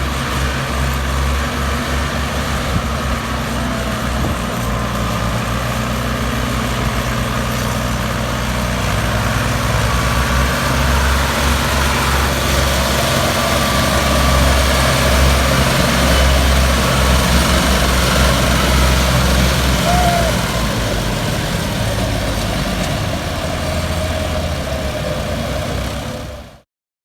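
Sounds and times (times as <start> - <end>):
tractor diesel engines running: 0.0 - 26.6.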